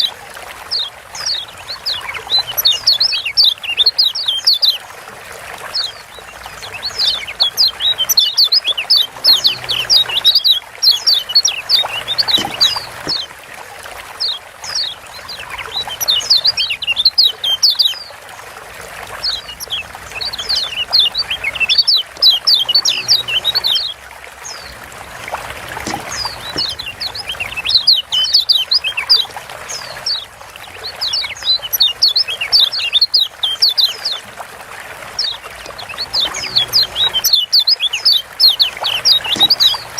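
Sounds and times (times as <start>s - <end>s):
bird giving sharp chirps: 6.8s - 13.3s.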